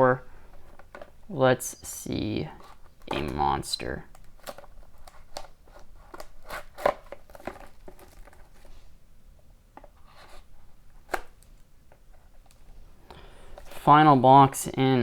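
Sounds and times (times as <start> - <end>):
cardboard tearing: 4.3 - 8.7.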